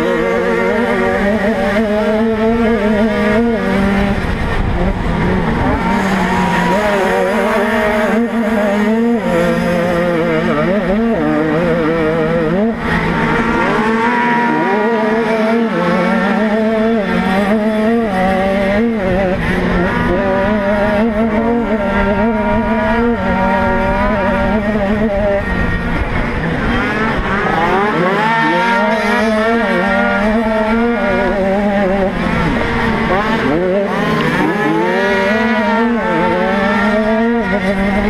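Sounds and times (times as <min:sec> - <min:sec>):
motocross bike engine wail: 0:00.0 - 0:38.0
wind rumble on microphone: 0:00.4 - 0:13.0.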